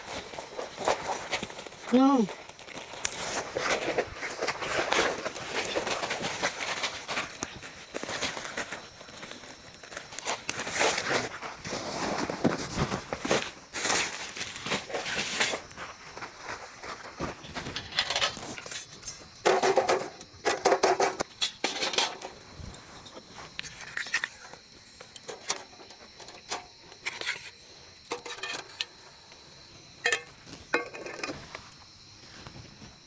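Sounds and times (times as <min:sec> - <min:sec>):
small hard objects clattering: 0:00.0 - 0:29.3, 0:29.9 - 0:31.9.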